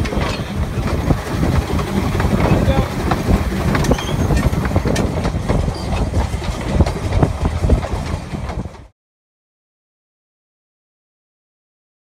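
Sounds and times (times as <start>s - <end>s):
train rumbling and rattling: 0.0s - 8.9s.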